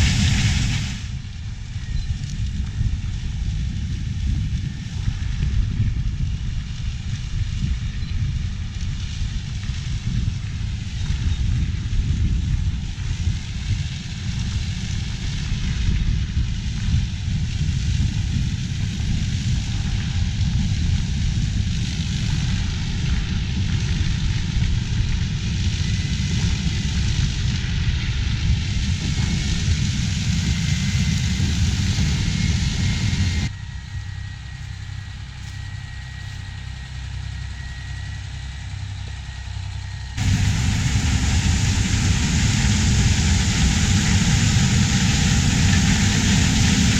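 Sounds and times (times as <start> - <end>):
hiss: 0.0 - 1.2, 8.6 - 36.4, 40.2 - 46.9
diesel farm machinery running: 0.0 - 46.9.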